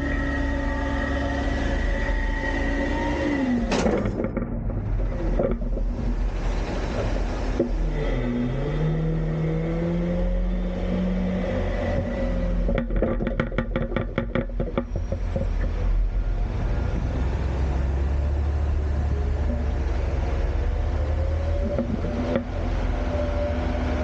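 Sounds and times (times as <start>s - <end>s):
garbage truck hydraulics whining: 0.0s - 13.7s
truck engine rumbling: 0.0s - 24.0s.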